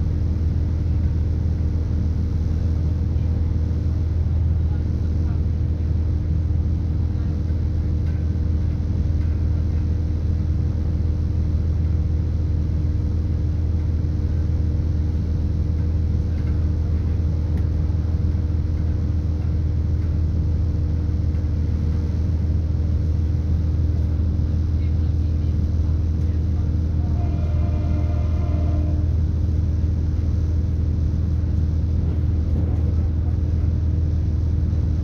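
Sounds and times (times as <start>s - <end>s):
diesel train engine rumble: 0.0s - 35.0s.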